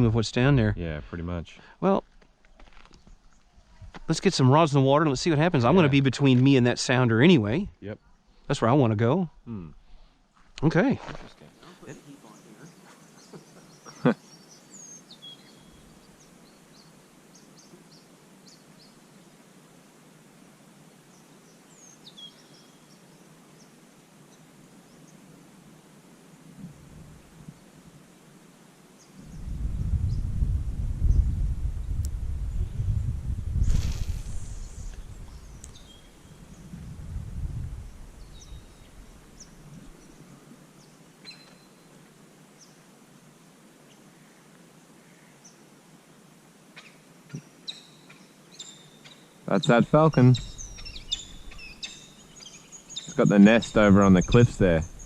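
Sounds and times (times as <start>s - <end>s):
outdoor background hiss: 0.0s - 55.0s
small birds chirping: 11.3s - 19.4s, 21.1s - 25.2s, 29.0s - 30.4s, 31.0s - 36.9s, 37.6s - 42.0s, 46.8s - 55.0s
low rumble: 29.2s - 39.9s.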